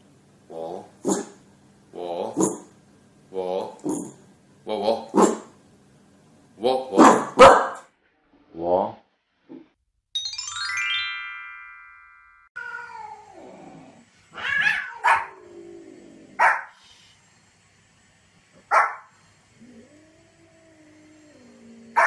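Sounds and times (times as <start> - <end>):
dog barking sharply: 5.2 - 5.5, 7.0 - 7.9, 14.7 - 15.3, 16.4 - 16.7, 18.7 - 19.1
cats meowing: 12.6 - 16.0.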